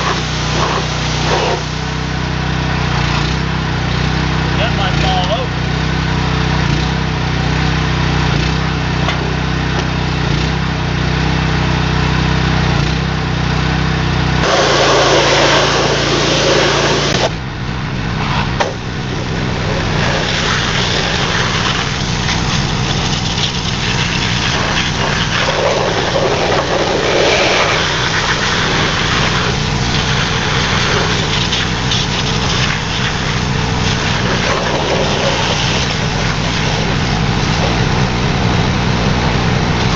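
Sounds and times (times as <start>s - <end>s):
water jet hissing on metal: 0.0s - 2.1s, 14.4s - 17.3s, 19.8s - 37.6s
pressure washer engine running: 0.0s - 39.9s.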